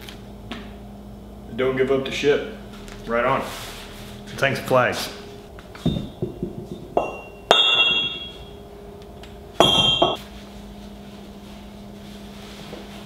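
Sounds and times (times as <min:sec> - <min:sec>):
steady low hum: 0:00.0 - 0:13.0
hard metallic strikes ringing: 0:05.9 - 0:08.6, 0:09.6 - 0:10.2.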